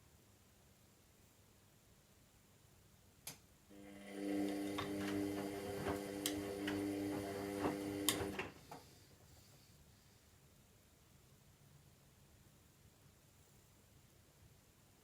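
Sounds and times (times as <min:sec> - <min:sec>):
washing machine drum motor humming: 0:03.8 - 0:08.7
washing machine clicks and knocks: 0:04.4 - 0:08.6.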